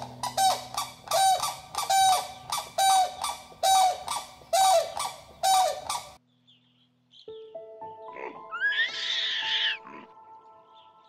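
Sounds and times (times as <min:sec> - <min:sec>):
large bird honking: 0:00.0 - 0:06.2.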